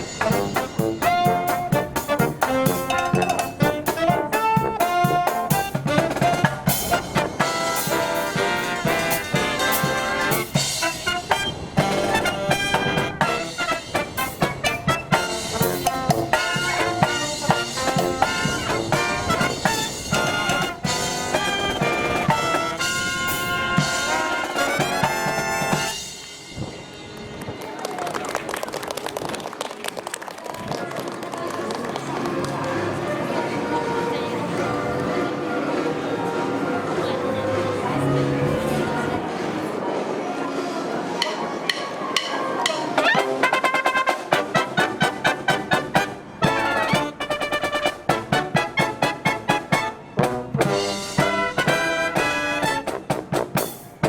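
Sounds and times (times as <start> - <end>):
brass marching band playing: 0.0 - 29.5, 31.9 - 40.0, 41.1 - 54.0.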